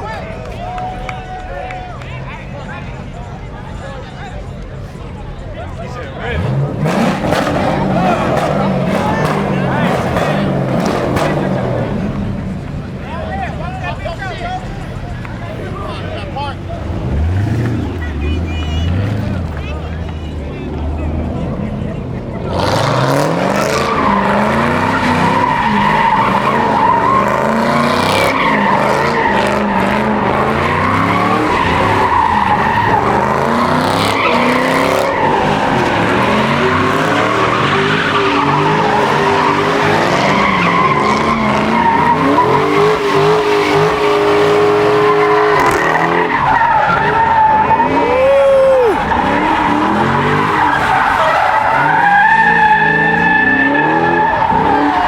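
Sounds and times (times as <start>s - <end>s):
tires squealing: 0.0s - 55.0s
car engine revving: 4.7s - 55.0s.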